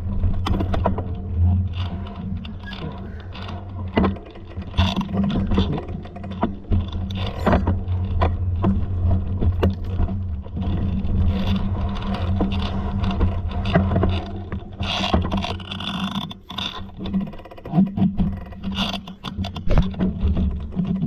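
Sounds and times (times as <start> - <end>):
steady low hum: 0.0 - 14.6
clicks and rattles: 0.0 - 21.0.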